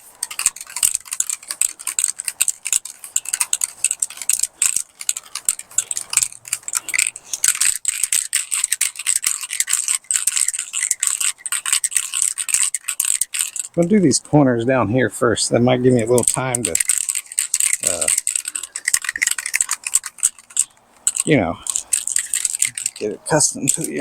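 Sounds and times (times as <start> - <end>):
aerosol can mixing ball rattling: 0.0 - 14.2, 15.8 - 24.0.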